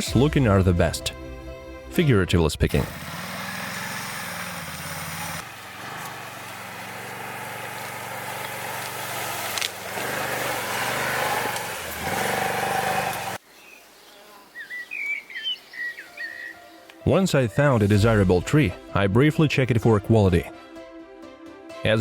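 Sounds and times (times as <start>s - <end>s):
small engine running: 2.7s - 13.4s.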